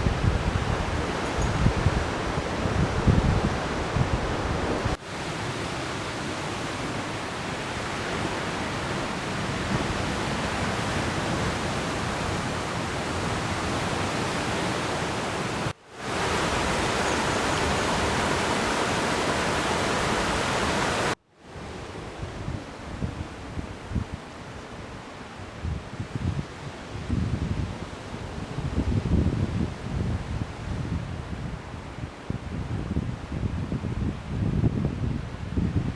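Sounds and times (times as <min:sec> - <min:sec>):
wind buffeting microphone: 0:00.0 - 0:21.2, 0:25.5 - 0:35.9
waterfall rushing: 0:00.7 - 0:21.2.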